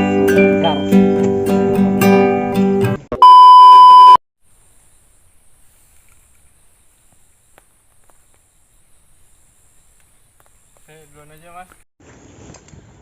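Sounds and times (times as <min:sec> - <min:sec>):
acoustic guitar song: 0:00.0 - 0:03.1
loud electronic beep: 0:03.2 - 0:04.2
thin high hiss: 0:04.4 - 0:11.2.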